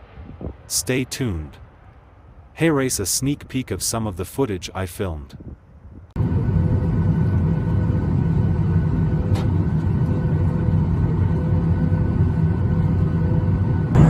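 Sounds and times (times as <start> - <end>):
airplane cabin rumble: 5.4 - 14.0.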